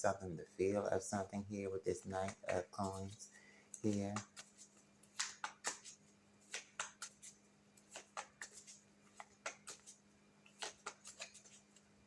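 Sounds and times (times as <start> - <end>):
cards flipped and slid: 2.2 - 3.2, 3.8 - 11.8.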